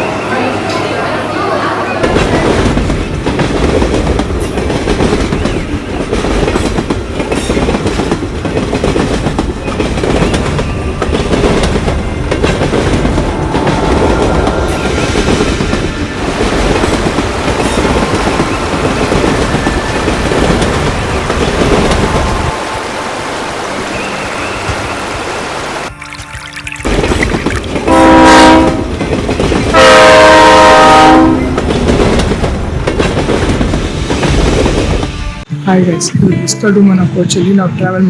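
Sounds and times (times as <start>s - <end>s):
train wheels clattering on rails: 2.0s - 22.6s, 27.0s - 35.5s.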